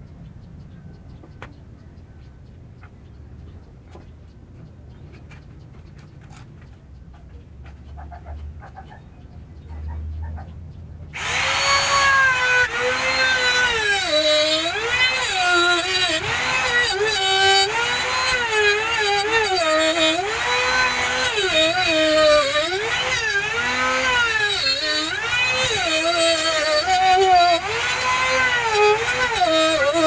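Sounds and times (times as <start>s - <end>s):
trim router motor whine: 11.2s - 30.0s.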